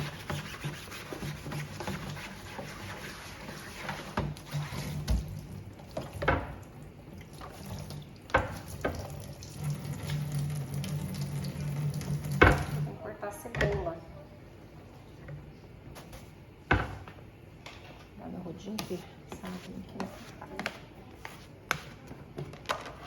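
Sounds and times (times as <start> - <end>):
tap running into sink: 8.3 - 12.9
knocks of things handled in sink: 12.2 - 12.9.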